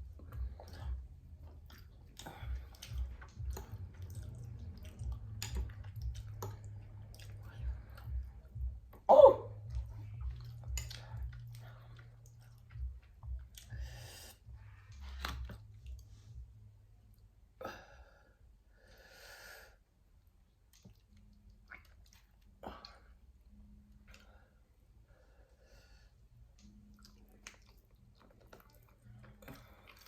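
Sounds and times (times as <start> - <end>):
chewing and smacking: 0.0 - 16.4, 20.6 - 23.0, 26.5 - 30.0.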